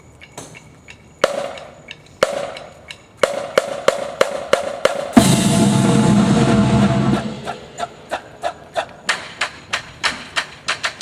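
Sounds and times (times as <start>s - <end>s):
drum strokes: 2.2s - 11.0s
ensemble hit with cymbal crash: 5.2s - 8.1s
held low chord: 5.2s - 8.1s.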